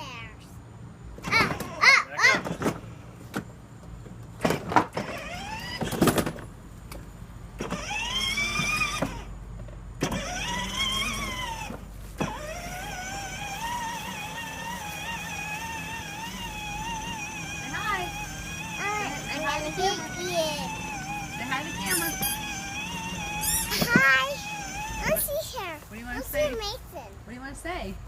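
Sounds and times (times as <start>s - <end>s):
small electric motor whining: 4.5s - 6.3s, 7.6s - 9.4s, 10.0s - 26.6s.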